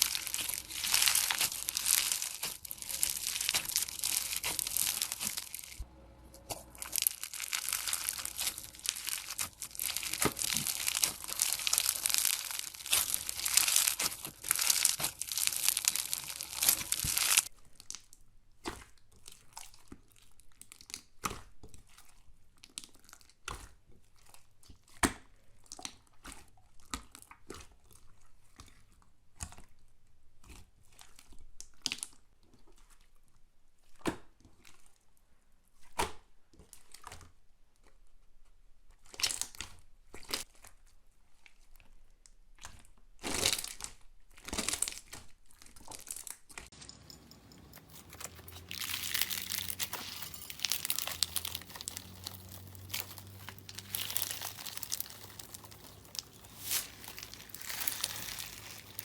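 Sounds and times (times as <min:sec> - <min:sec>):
slime crackling and crinkling: 0:00.0 - 0:24.9, 0:42.7 - 0:59.0.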